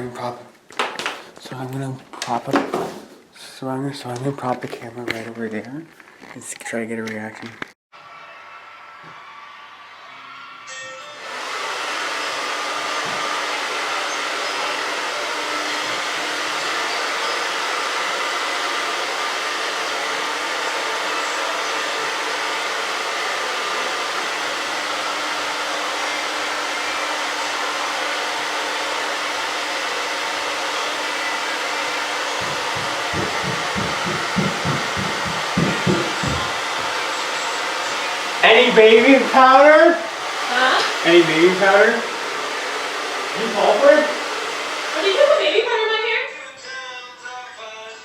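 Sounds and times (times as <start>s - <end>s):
hair dryer running: 8.1s - 46.3s.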